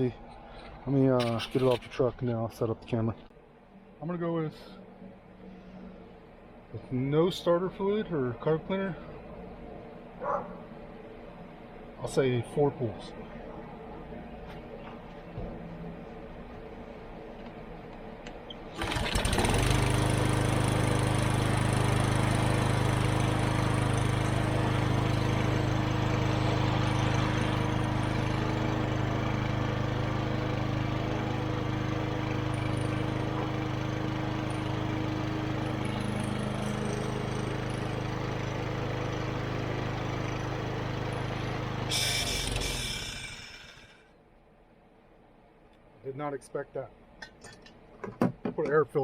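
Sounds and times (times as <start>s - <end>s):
lawn mower engine running: 18.7s - 44.0s.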